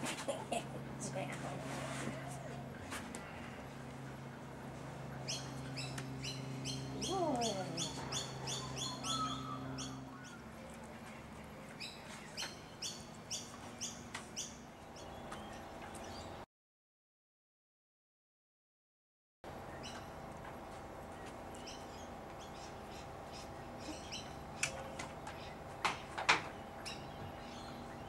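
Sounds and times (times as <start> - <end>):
bird chirping: 5.2 - 10.4.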